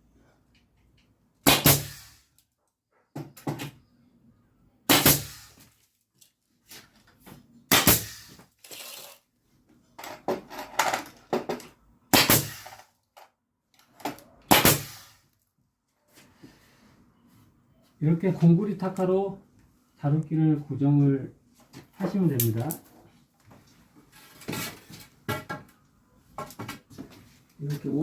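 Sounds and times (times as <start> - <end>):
concrete nailer shots: 1.4 - 2.3, 4.9 - 5.6, 7.7 - 9.2, 12.1 - 12.8, 14.5 - 15.2.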